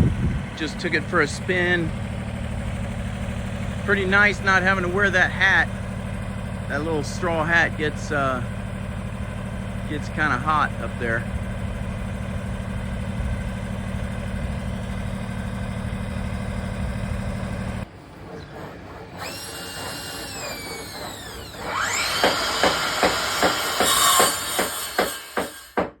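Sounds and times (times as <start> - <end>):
diesel tractor engine idling: 0.0 - 19.8.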